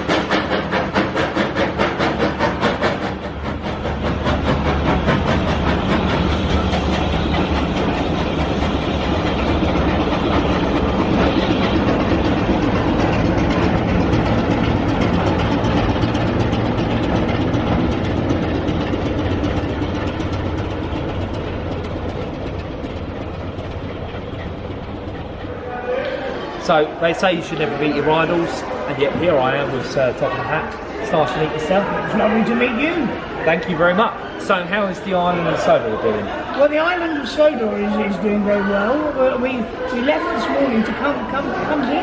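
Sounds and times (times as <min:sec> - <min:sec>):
train rumbling on rails: 0:00.0 - 0:42.0.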